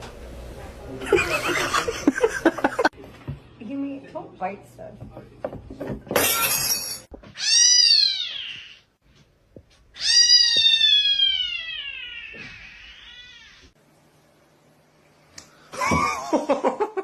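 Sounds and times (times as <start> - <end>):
cat meowing: 7.3 - 8.9, 10.0 - 13.7.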